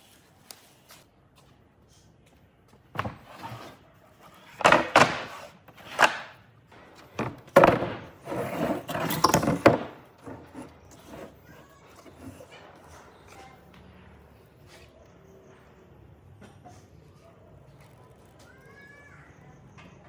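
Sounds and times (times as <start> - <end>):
wood scraping: 2.9 - 13.6.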